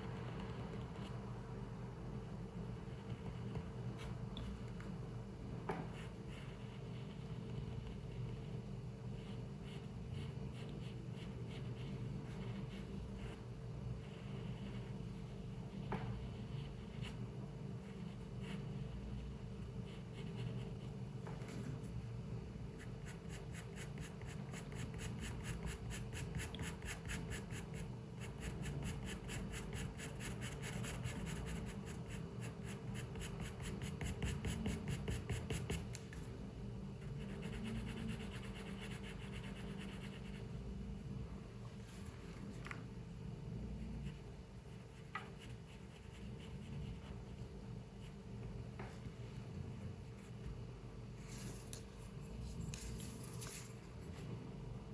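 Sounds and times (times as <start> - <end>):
low room hum: 0.0 - 54.9
pencil scratching on paper: 5.9 - 17.2, 17.8 - 21.0, 22.8 - 35.9, 37.0 - 40.5, 44.0 - 47.4.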